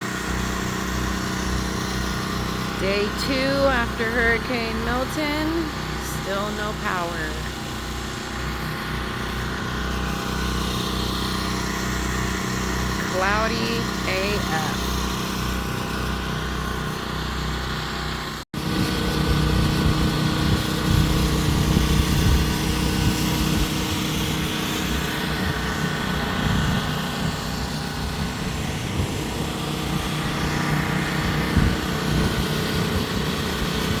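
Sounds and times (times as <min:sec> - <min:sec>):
portable generator engine running: 0:00.0 - 0:34.0.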